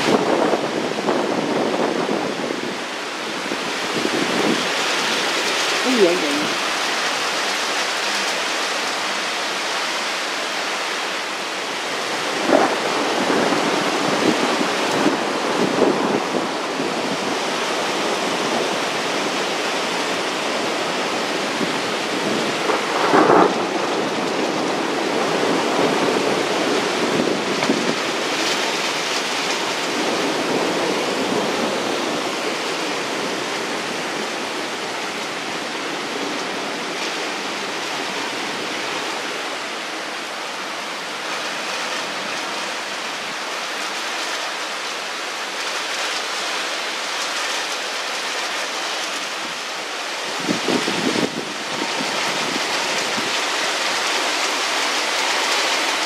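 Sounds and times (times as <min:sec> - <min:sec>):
heavy rain pouring: 0:00.0 - 0:56.0
thunder rumbling: 0:21.6 - 0:33.9.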